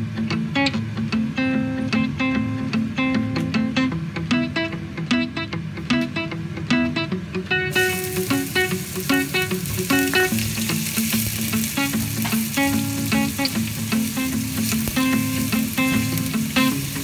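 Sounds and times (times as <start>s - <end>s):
background guitar music: 0.0s - 17.0s
onion sizzling in hot oil: 7.7s - 17.0s.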